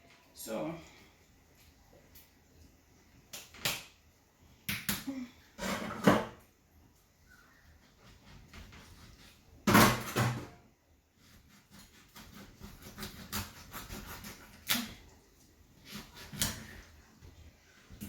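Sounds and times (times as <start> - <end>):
pots and utensils clattering: 5.6 - 6.4, 9.6 - 10.6.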